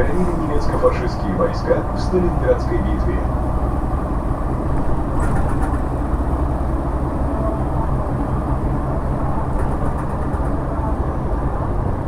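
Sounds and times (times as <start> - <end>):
bus diesel engine running: 0.0 - 12.0
low road rumble: 0.0 - 12.0
faint rattles: 3.2 - 7.1, 7.8 - 11.1.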